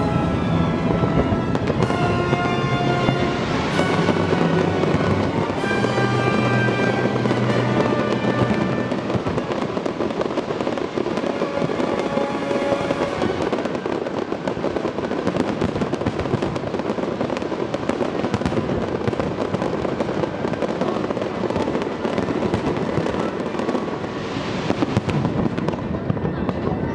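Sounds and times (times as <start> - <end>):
parade music: 0.0 - 14.3
fireworks crackling and popping: 0.0 - 26.9.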